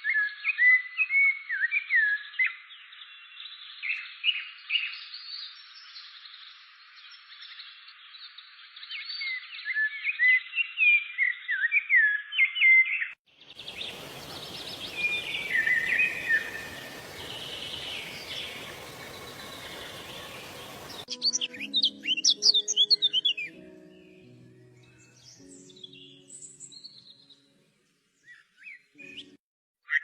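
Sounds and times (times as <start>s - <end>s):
songbirds singing: 13.5s - 24.0s
bird whistling: 13.6s - 21.1s
rapid high bird chirps: 13.6s - 21.1s
steady rushing noise: 13.6s - 21.1s
soft background music: 18.8s - 29.4s.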